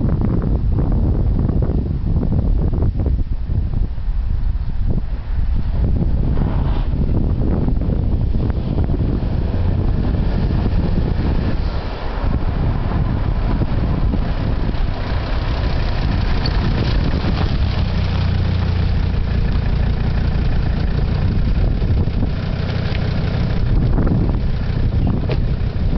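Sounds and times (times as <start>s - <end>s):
diesel engine running: 7.4s - 25.9s.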